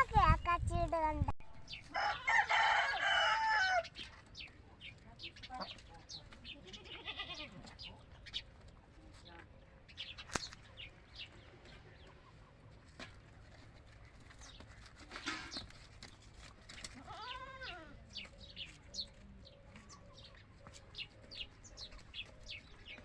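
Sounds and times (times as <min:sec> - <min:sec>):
goat bleating: 0:06.6 - 0:07.7, 0:17.0 - 0:18.0.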